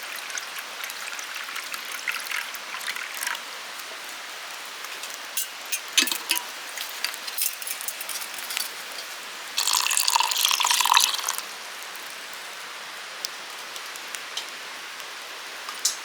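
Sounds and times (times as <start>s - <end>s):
wood fire crackling and popping: 4.5s - 9.8s, 13.2s - 16.0s.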